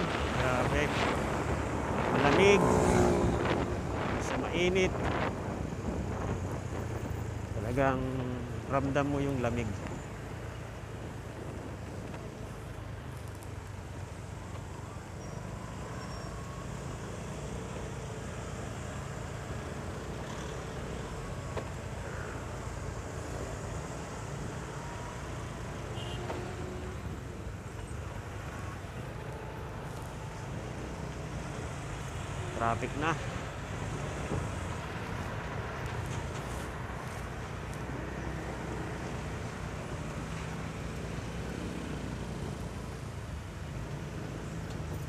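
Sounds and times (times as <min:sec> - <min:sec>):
wind rush: 0:00.0 - 0:07.6
motorcycle road noise: 0:00.0 - 0:45.0.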